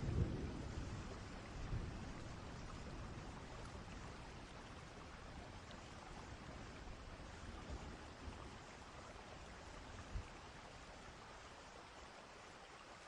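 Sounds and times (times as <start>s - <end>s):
distant thunder rumbling: 0.0s - 3.8s
steady rain: 0.0s - 13.0s.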